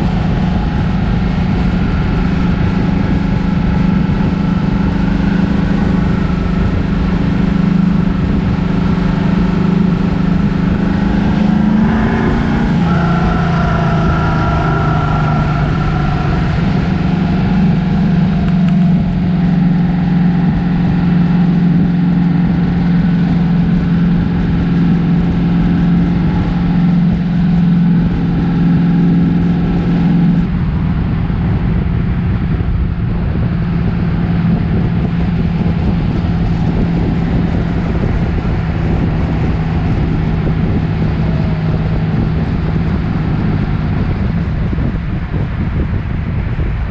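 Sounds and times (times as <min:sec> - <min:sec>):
car engine running: 0:00.0 - 0:46.9.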